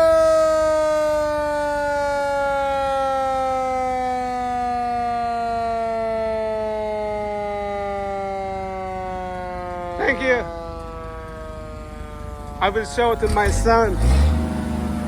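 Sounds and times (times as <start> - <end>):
mechanical siren winding down: 0.0 - 15.0.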